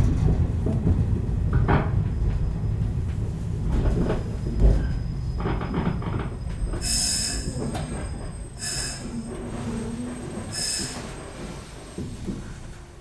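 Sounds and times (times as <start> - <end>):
train running rumble: 0.0 - 13.0
train wheel squeal: 4.0 - 12.7.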